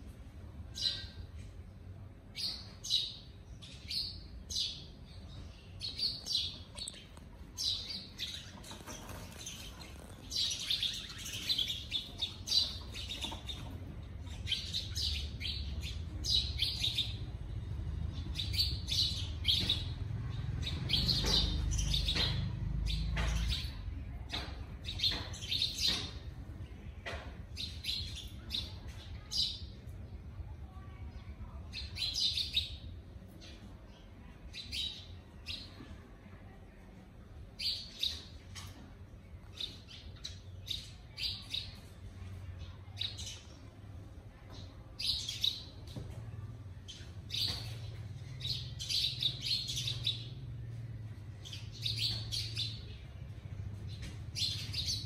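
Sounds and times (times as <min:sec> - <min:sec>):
small birds chirping: 0:00.3 - 0:55.0.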